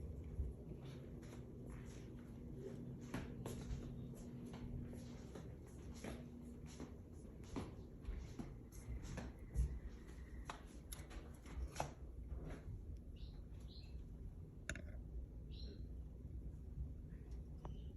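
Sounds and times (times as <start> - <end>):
light clicks and scratches in cage: 7.6 - 14.1.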